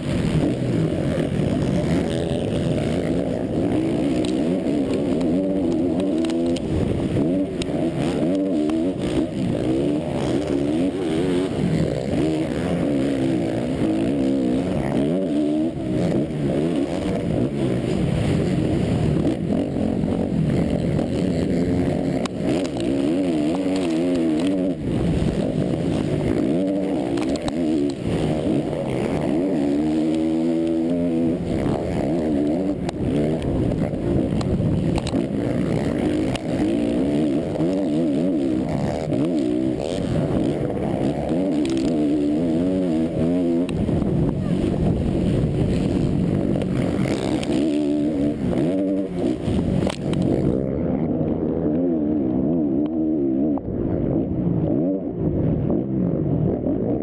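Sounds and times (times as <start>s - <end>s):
motorcycle engine revving hard: 0.0s - 57.0s.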